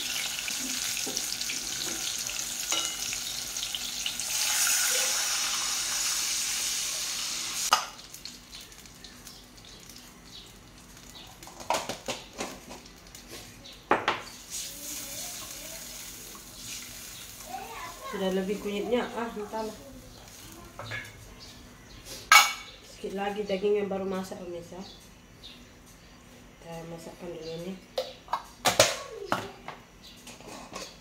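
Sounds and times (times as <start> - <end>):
onion and spices sizzling in oil: 0.0 - 23.9.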